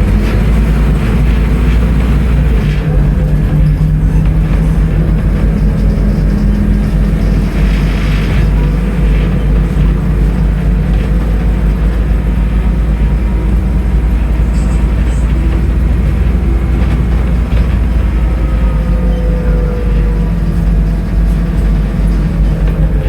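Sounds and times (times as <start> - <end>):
bus diesel engine rumbling: 0.0 - 23.0
drivetrain whine: 0.0 - 23.0.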